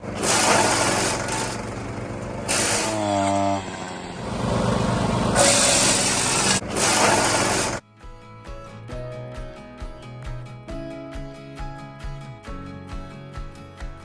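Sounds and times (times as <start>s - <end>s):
small gasoline engines running hard: 0.0s - 7.8s.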